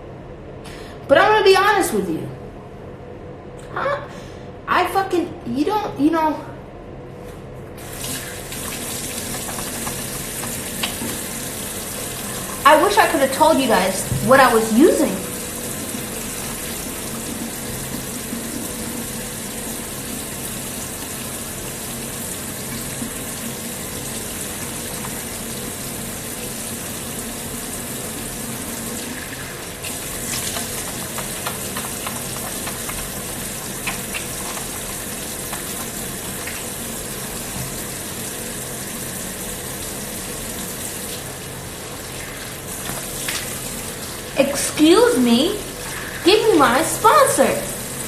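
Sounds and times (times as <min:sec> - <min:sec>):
tap running into sink: 0:08.0 - 0:11.4, 0:14.0 - 0:14.4, 0:29.8 - 0:36.7.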